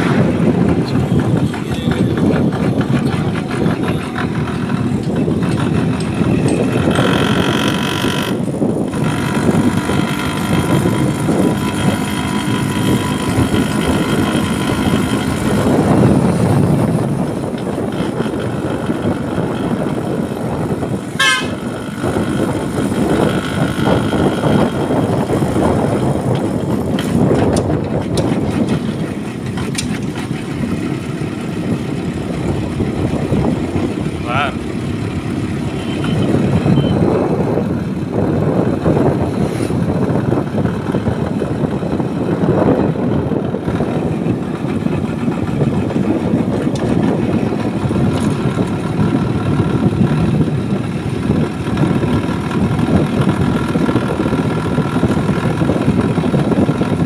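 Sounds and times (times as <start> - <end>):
motorcycle engine: 0.0 - 57.0
traffic noise: 0.0 - 57.0
wind: 0.0 - 57.0
vehicle horn: 21.2 - 21.8, 35.8 - 37.0.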